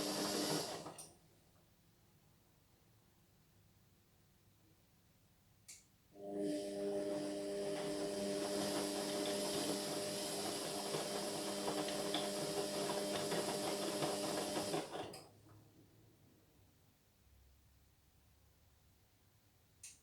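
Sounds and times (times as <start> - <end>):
washing machine motor hum: 0.0 - 1.0, 6.2 - 15.2.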